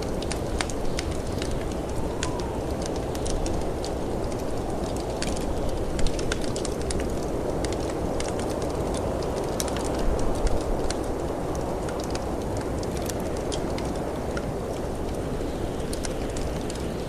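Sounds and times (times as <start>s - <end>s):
wood fire crackling and popping: 0.0s - 17.0s
snowstorm wind rushing: 0.2s - 6.0s.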